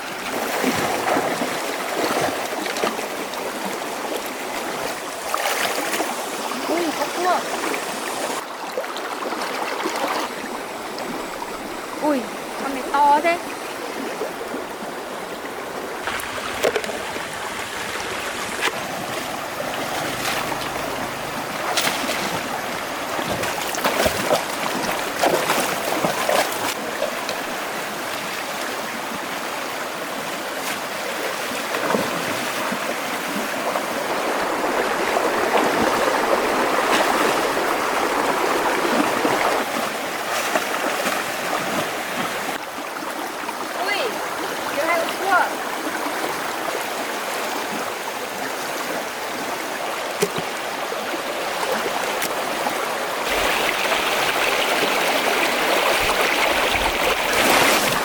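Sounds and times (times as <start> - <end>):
rush of water: 0.0 - 58.0
water sloshing and splashing: 0.0 - 58.0
sharp splashes or knocks: 16.0 - 26.8.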